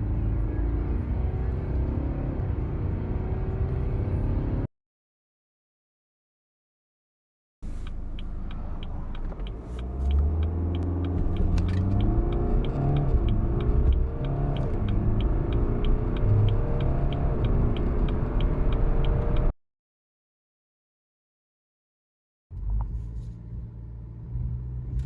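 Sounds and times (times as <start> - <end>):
car engine accelerating: 0.0 - 4.7, 7.6 - 19.5.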